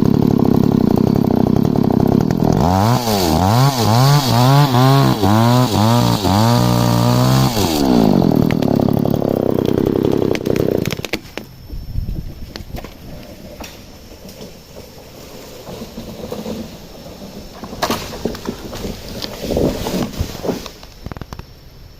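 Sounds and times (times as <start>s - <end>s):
chainsaw engine revving and idling: 0.0s - 11.2s.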